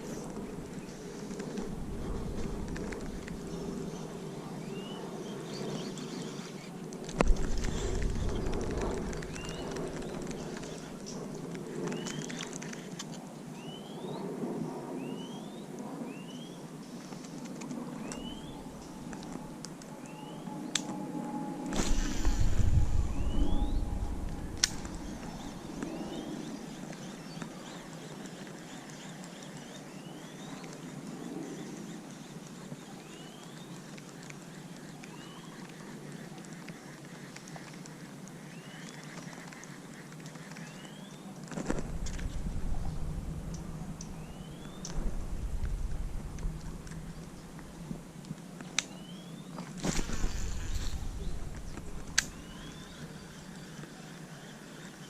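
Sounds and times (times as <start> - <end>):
wind on microphone rumble: 0.0 - 13.0, 17.1 - 28.8, 41.5 - 48.6, 49.7 - 55.0
outdoor background noise: 0.0 - 55.0
bird chirping: 18.0 - 19.0, 48.9 - 55.0
bird rising whistle: 21.8 - 26.4.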